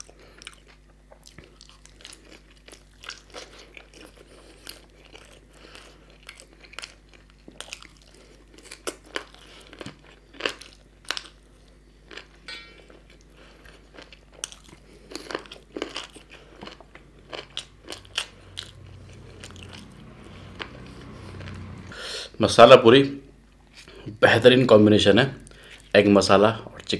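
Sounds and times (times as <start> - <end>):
chewing and crunching food: 0.0 - 21.9, 25.4 - 26.0
low hum: 14.9 - 22.4.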